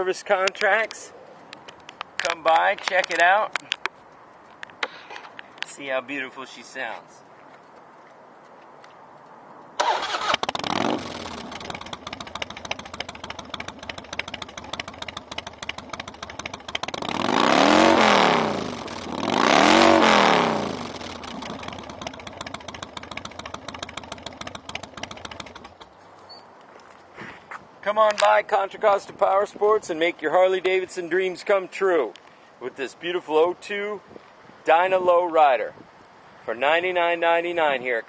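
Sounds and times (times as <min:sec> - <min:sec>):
engine revving: 0:09.8 - 0:25.7
motorcycle engine starting and idling: 0:09.8 - 0:26.0.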